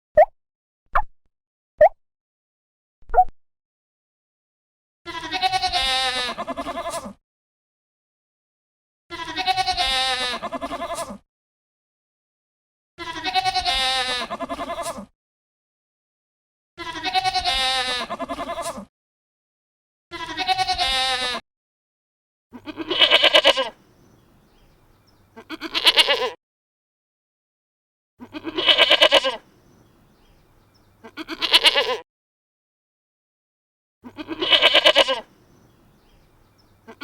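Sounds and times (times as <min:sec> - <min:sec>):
harsh pulsed bleats: 0:05.1 - 0:07.2, 0:09.1 - 0:11.2, 0:13.0 - 0:15.1, 0:16.8 - 0:18.9, 0:20.1 - 0:21.4, 0:22.5 - 0:23.8, 0:25.2 - 0:26.4, 0:28.2 - 0:29.5, 0:31.0 - 0:32.0, 0:34.0 - 0:35.3, 0:36.7 - 0:37.0
wavering bleats: 0:05.1 - 0:07.2, 0:09.1 - 0:11.2, 0:13.0 - 0:15.1, 0:16.8 - 0:18.9, 0:20.1 - 0:21.4, 0:22.5 - 0:23.9, 0:25.2 - 0:26.4, 0:28.2 - 0:30.3, 0:30.9 - 0:32.0, 0:34.0 - 0:35.7, 0:36.6 - 0:37.0.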